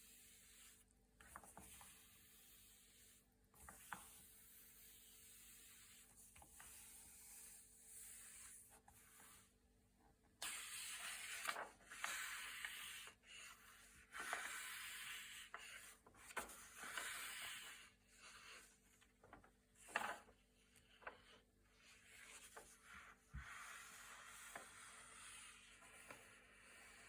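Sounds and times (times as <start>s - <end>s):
paper pages turning: 10.5s - 12.8s, 18.5s - 20.3s.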